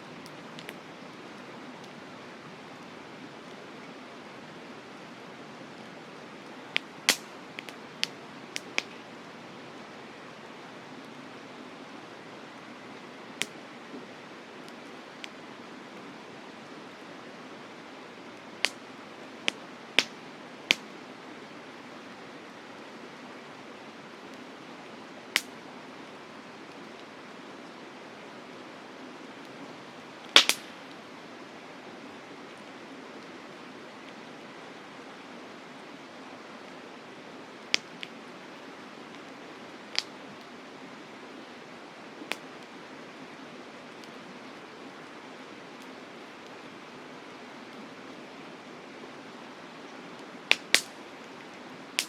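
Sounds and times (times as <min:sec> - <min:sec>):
campfire crackling and popping: 0:00.0 - 0:02.1, 0:04.6 - 0:09.6, 0:12.5 - 0:16.0, 0:18.2 - 0:21.0, 0:23.8 - 0:27.1, 0:29.4 - 0:31.2, 0:37.5 - 0:44.3, 0:45.0 - 0:46.9, 0:50.2 - 0:52.0.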